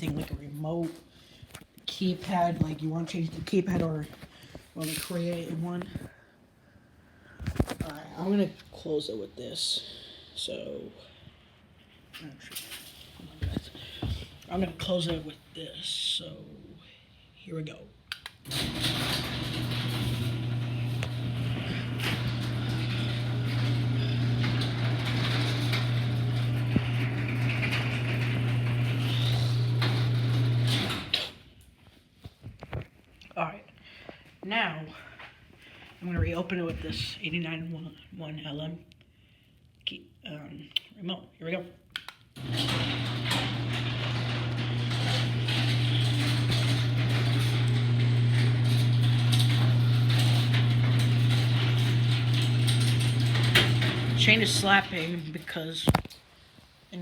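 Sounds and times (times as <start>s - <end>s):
garage door opener motor hum: 18.4s - 31.4s, 42.4s - 55.2s
chain and door rumble: 18.5s - 31.2s, 42.4s - 55.0s.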